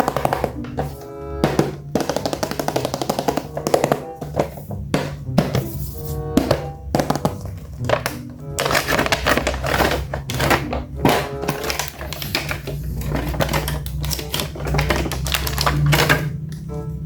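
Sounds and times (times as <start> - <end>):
faint background music: 0.0 - 17.0
toy packaging crackling: 5.7 - 16.6.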